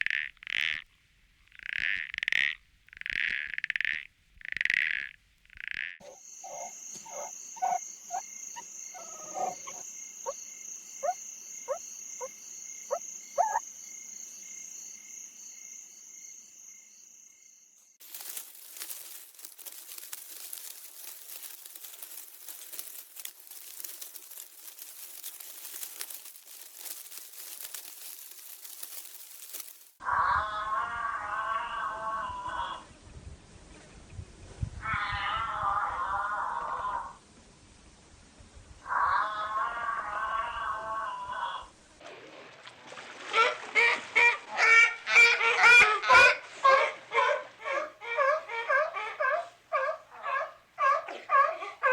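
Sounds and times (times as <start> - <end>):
frogs croaking: 0.0 - 29.9
dense crackling hiss: 18.0 - 30.0.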